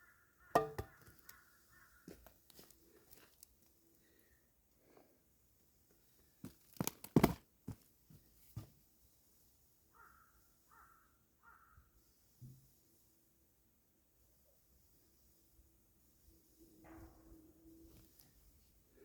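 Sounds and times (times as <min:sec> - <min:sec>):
crow cawing: 0:00.0 - 0:02.2, 0:10.0 - 0:11.8
sharp knocks: 0:00.6 - 0:01.0.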